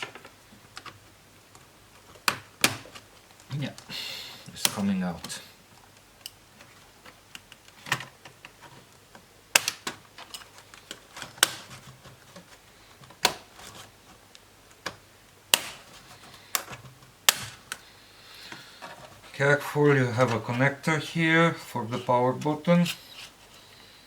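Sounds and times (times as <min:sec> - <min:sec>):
plastic clips snapping: 0:09.5 - 0:11.8, 0:13.0 - 0:13.6, 0:14.7 - 0:17.8.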